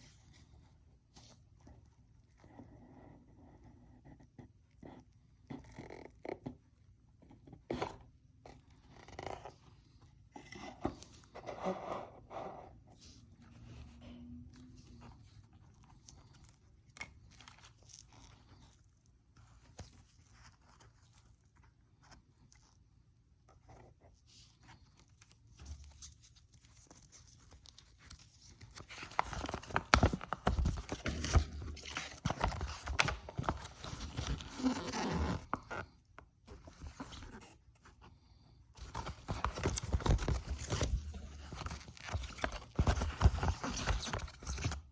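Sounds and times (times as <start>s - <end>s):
packaging being handled: 24.6s - 35.8s, 38.8s - 44.9s.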